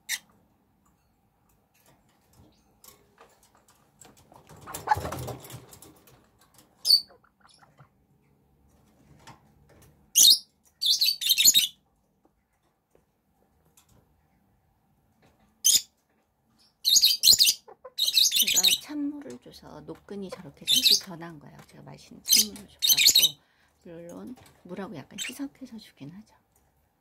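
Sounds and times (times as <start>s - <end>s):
chicks peeping: 6.9s - 8.0s, 17.4s - 18.9s.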